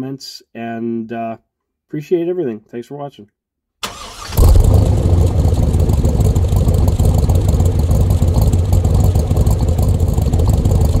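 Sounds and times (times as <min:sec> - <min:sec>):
car engine idling: 0:03.9 - 0:11.0.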